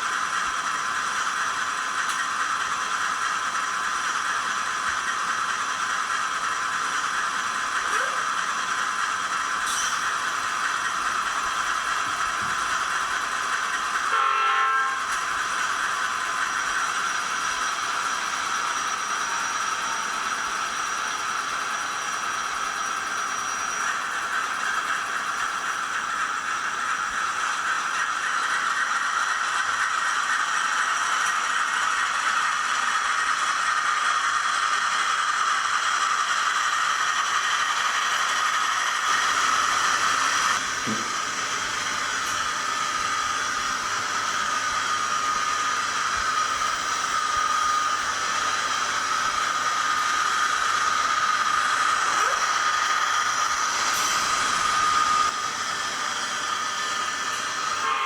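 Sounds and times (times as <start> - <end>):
diesel engine sound from small speaker: 6.4 - 15.1, 45.6 - 55.3.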